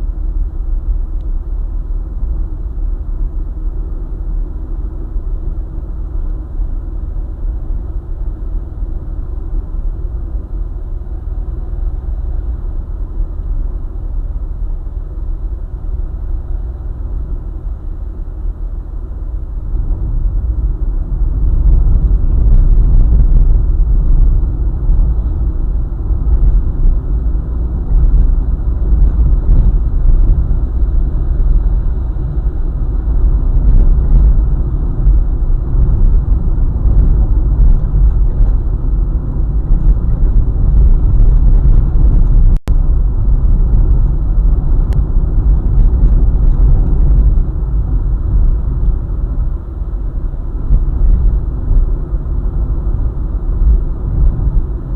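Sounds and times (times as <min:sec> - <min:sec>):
car road rumble: 0:00.0 - 0:54.9.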